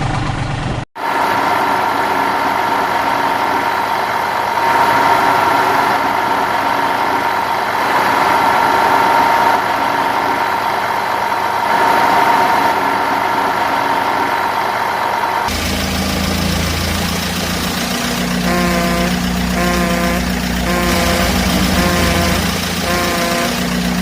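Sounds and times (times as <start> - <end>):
vehicle engine idling: 13.2 - 24.0.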